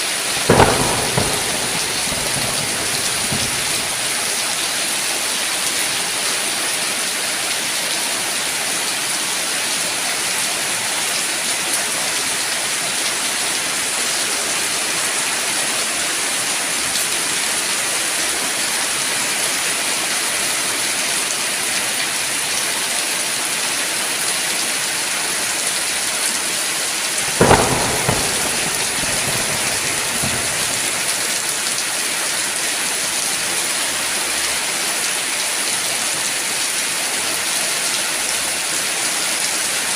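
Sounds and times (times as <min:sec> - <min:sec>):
heavy rain: 0:00.0 - 0:39.9
thunder crack rumbling: 0:00.3 - 0:04.6, 0:27.2 - 0:31.6.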